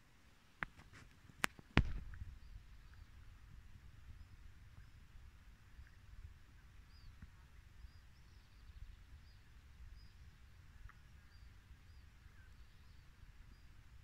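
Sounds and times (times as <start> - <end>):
bird chirping: 6.9 - 13.8.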